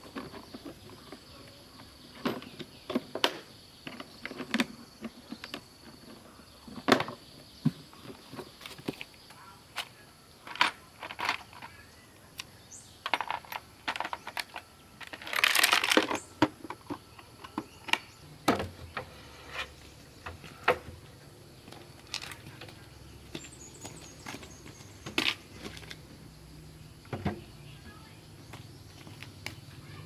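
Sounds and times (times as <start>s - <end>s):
clicks of small hard objects: 9.7s - 11.8s, 12.4s - 18.2s, 21.7s - 26.0s
scraping rustle: 13.0s - 21.2s.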